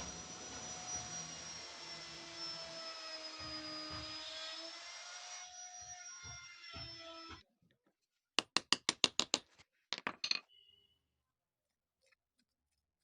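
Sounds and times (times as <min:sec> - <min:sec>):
machine hum with high whine: 0:00.0 - 0:01.8.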